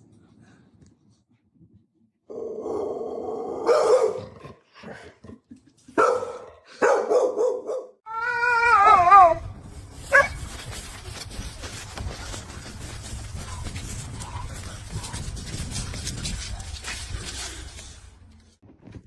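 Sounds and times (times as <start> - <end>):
dog barking and howling: 2.6 - 4.3, 6.0 - 9.4
dog yipping: 10.1 - 10.4.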